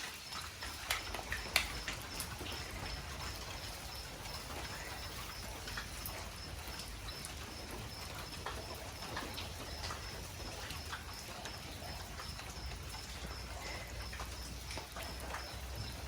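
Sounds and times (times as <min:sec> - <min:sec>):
bonfire crackling and popping: 0:00.1 - 0:03.0.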